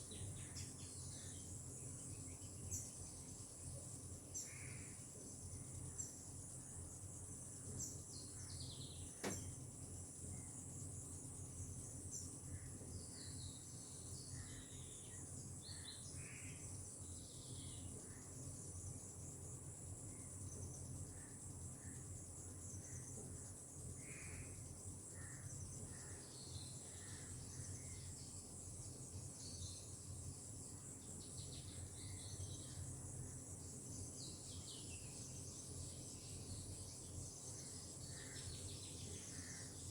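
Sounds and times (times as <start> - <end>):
insect chorus: 0.0 - 39.9
sharp click: 9.2 - 9.5.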